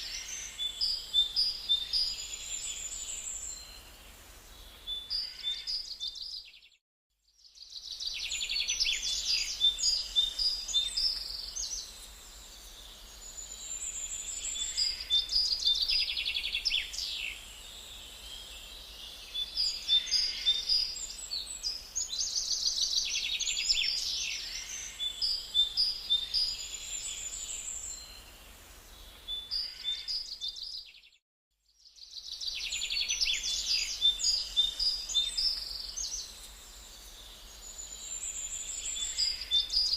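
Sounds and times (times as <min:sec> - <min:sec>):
birds chirping and singing: 0:18.2 - 0:28.1, 0:32.1 - 0:39.9.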